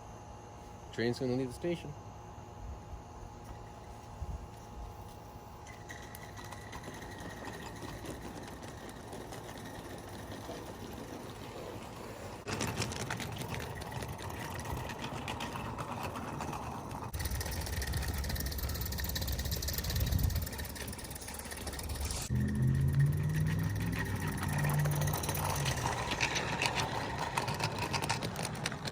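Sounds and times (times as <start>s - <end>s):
steam locomotive chuffing: 17.1s - 28.7s.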